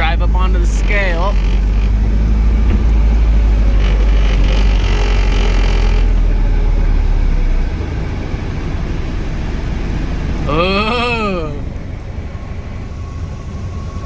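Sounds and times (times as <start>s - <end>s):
car engine running at low speed: 0.0s - 14.0s.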